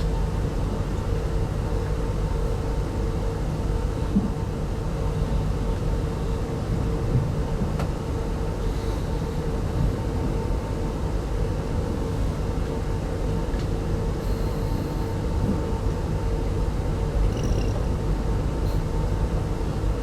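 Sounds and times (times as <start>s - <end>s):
constant hum: 0.0s - 20.0s
train rumbling from inside: 0.0s - 20.0s.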